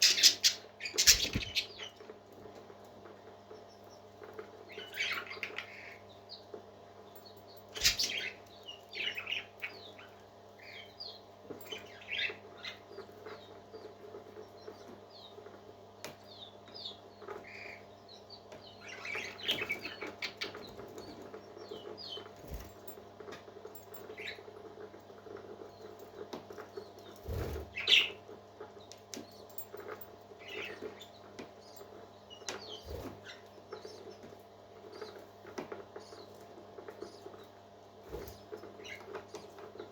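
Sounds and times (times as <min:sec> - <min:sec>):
parrot chicks squeaking: 0:00.0 - 0:02.0, 0:07.8 - 0:13.9, 0:16.8 - 0:22.7, 0:26.8 - 0:28.2.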